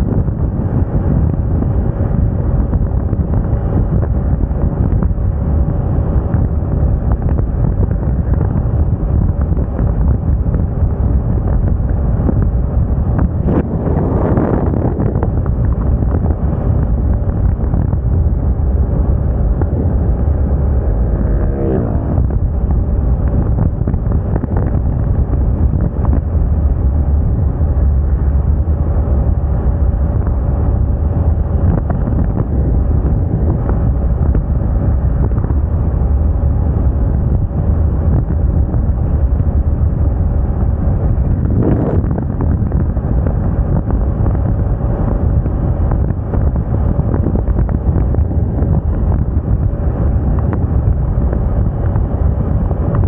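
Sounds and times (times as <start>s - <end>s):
scooter engine drone: 0.0s - 53.0s
wind buffeting microphone: 0.0s - 53.0s
sound sliding down in pitch: 19.1s - 22.7s.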